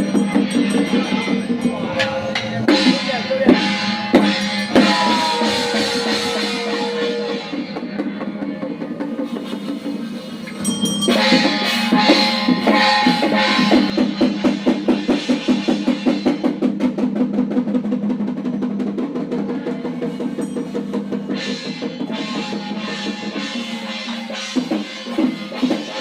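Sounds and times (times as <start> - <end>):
steady held tone: 0.0 - 8.6, 10.4 - 14.4
crashing cymbal hits: 0.0 - 17.2, 20.0 - 26.0
ceremonial drums: 0.0 - 26.0.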